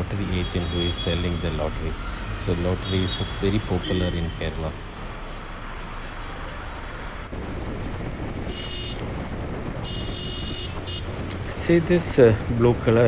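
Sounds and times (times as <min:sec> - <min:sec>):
road and traffic noise: 0:00.0 - 0:13.0
wind on microphone: 0:07.2 - 0:13.0.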